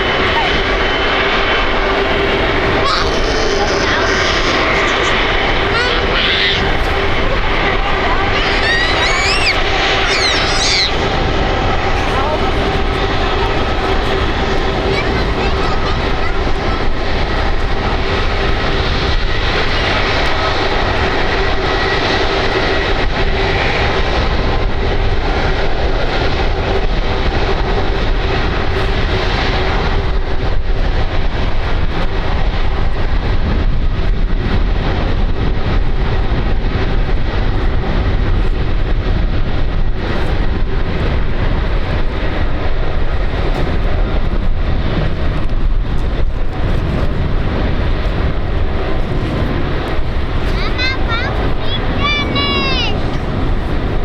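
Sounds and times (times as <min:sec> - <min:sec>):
jet engine rumble: 0:00.0 - 0:54.0
jet engines whining: 0:00.0 - 0:54.0.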